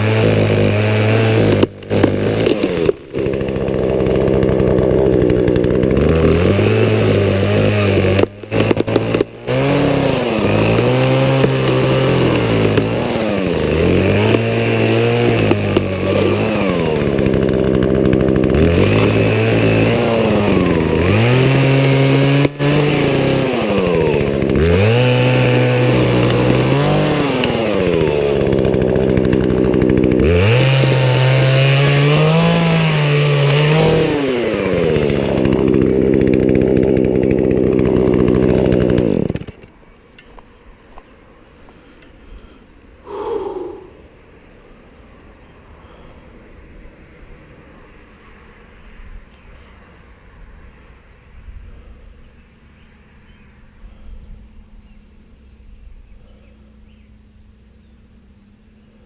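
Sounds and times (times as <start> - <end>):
chainsaw running: 0.0 - 44.2.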